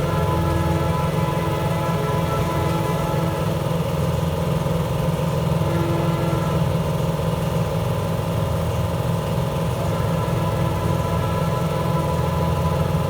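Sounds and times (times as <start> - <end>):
faint steady tones: 0.0 - 4.5, 9.6 - 13.0
motor humming: 9.6 - 13.0.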